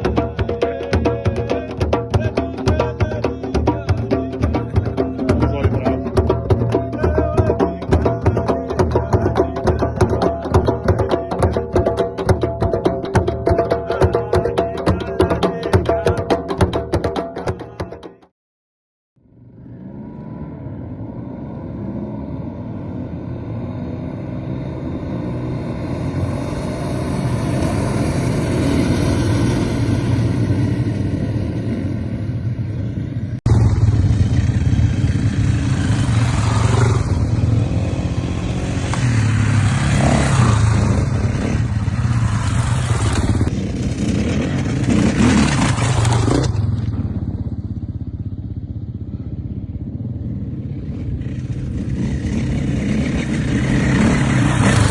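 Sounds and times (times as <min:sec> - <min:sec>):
motocross motorcycle engines revving: 0:19.7 - 0:54.9.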